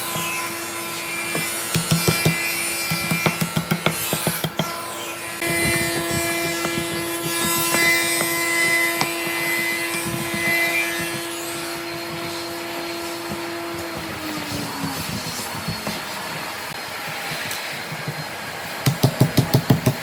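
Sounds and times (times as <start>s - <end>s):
power tool motor running: 3.4s - 17.0s
wood scraping and knocks: 5.4s - 16.5s.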